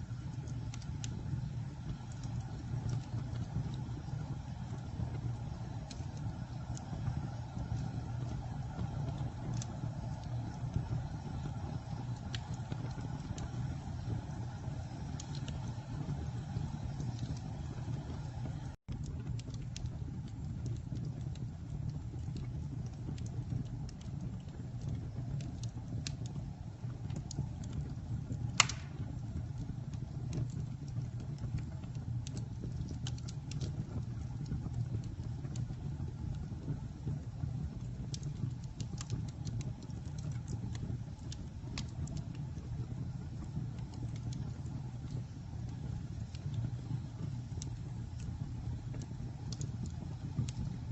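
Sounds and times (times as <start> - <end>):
fire crackling: 0.0 - 50.9
flame rumbling: 0.0 - 50.9
loud fire pop: 28.6 - 29.2.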